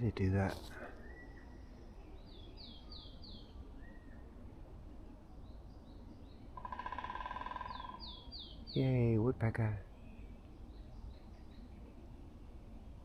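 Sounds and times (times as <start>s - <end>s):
woodpecker drumming: 6.6s - 8.0s.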